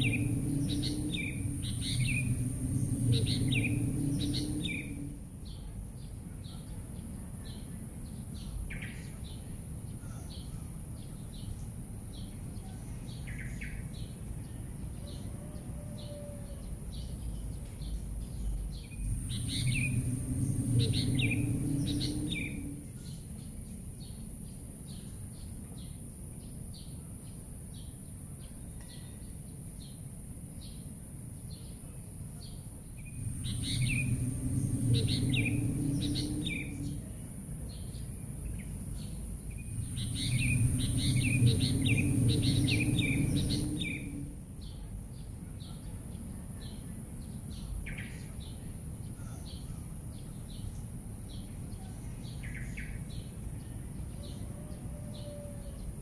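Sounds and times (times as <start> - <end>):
low rumble: 0.0 - 6.3, 16.6 - 24.3, 32.7 - 45.4
birds chirping: 0.0 - 11.6, 16.6 - 24.2, 32.4 - 54.6
steady high-pitched hiss: 0.0 - 15.3, 16.6 - 56.0.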